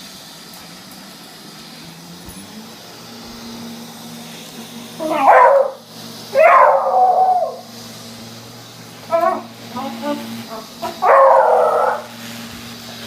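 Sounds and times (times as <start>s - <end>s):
robot vacuum humming: 0.0s - 13.0s
dog barking: 5.0s - 5.8s, 6.4s - 7.6s, 9.1s - 12.1s.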